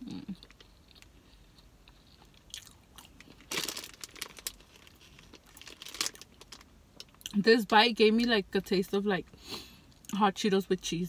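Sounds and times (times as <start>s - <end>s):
chewing crunchy burrito: 0.0s - 7.3s.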